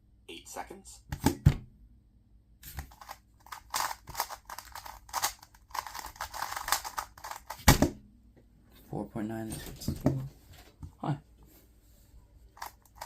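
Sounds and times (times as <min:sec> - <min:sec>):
puzzle cube plastic clicking: 0:02.8 - 0:07.6, 0:12.6 - 0:13.0.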